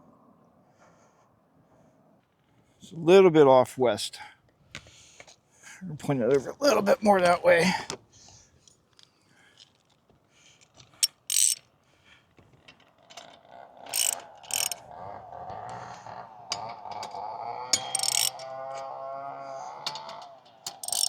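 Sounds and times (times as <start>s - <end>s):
metal clicks and ratcheting: 10.6s - 11.7s, 12.4s - 21.0s
metallic squeak of mast turning: 11.0s - 11.6s, 13.9s - 14.8s, 17.8s - 18.9s, 20.0s - 21.0s.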